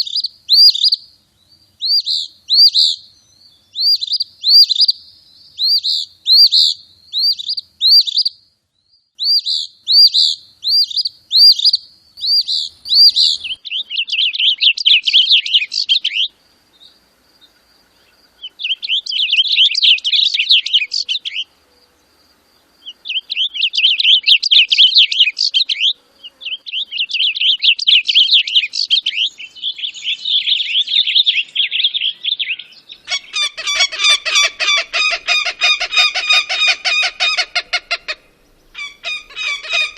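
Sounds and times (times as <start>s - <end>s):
bird chirping and trilling: 0.0s - 16.3s, 18.4s - 21.5s, 22.8s - 39.9s
harsh low bird call: 29.7s - 39.9s.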